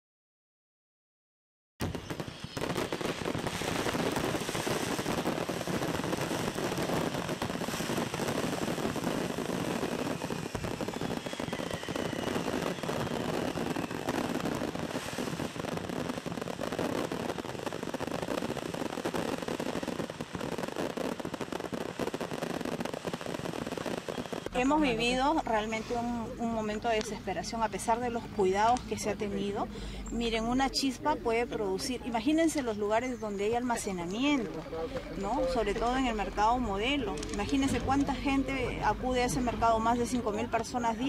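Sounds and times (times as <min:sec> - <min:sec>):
fireworks cracking and popping: 0:01.8 - 0:41.0
falling whistle: 0:09.9 - 0:14.4.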